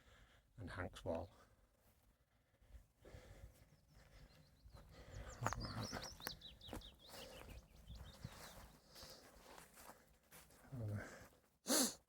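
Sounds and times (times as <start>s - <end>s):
songbird chirping: 3.5s - 10.0s.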